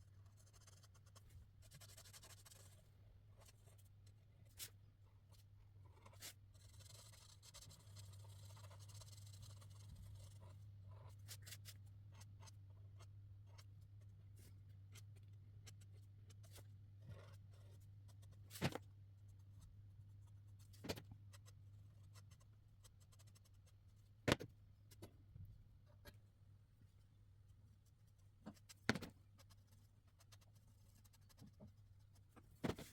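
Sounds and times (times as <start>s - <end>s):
marker scratching on paper: 0.3s - 2.8s, 6.0s - 13.7s, 14.9s - 18.8s.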